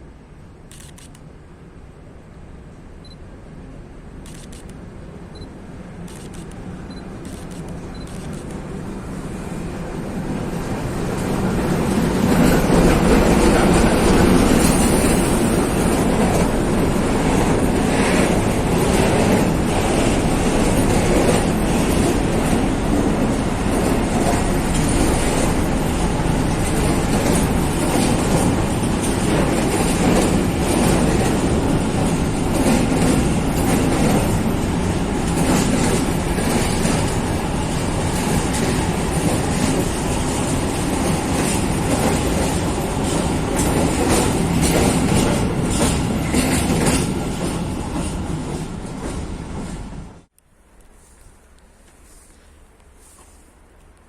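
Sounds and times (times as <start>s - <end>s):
train wheels rumbling on rails: 5.3s - 50.4s
wheels clacking over rail joints: 10.3s - 49.8s.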